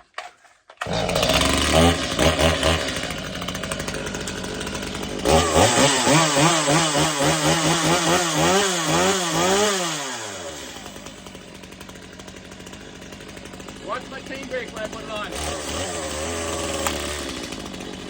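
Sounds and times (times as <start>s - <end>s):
chainsaw engine revving: 0.8s - 18.0s.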